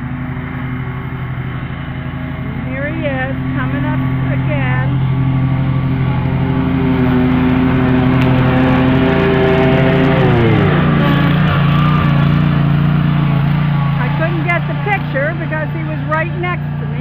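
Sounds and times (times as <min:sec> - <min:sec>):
lawn mower engine running: 0:00.0 - 0:17.0.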